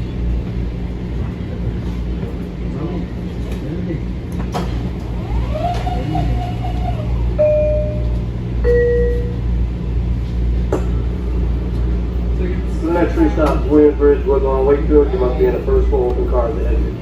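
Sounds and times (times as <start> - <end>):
railcar low hum: 0.0 - 17.0
two-note descending door chime: 7.4 - 9.4.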